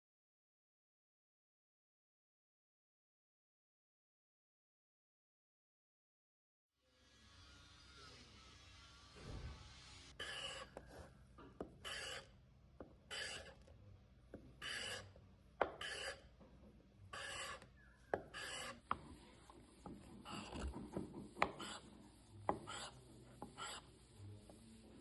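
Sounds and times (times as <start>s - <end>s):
hand tool rasping on wood: 10.2s - 10.9s, 11.6s - 12.3s, 13.1s - 13.6s, 14.6s - 16.2s, 17.1s - 17.6s, 18.2s - 19.1s, 19.8s - 23.9s.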